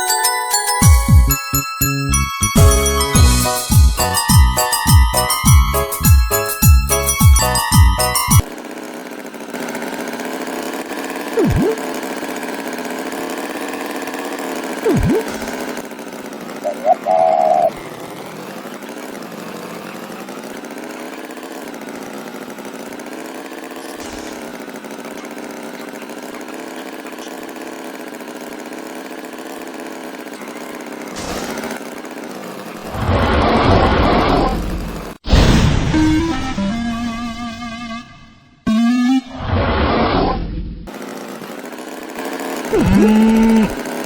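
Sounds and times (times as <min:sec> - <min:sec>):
cartoon tractor engine: 0:00.0 - 0:44.0
swooping whistles: 0:16.7 - 0:17.7.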